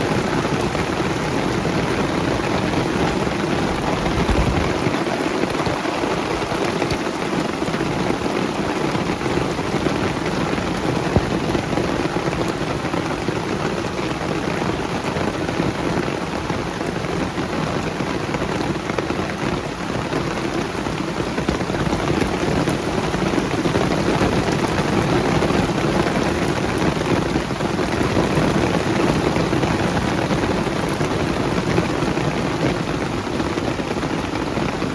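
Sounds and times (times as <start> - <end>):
rain on leaves: 0.0 - 34.9.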